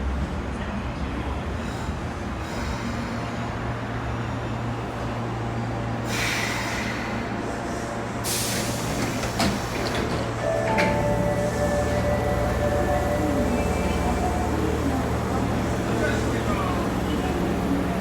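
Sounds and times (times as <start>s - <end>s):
train low hum: 0.0s - 18.0s
air brake hiss: 6.0s - 10.0s.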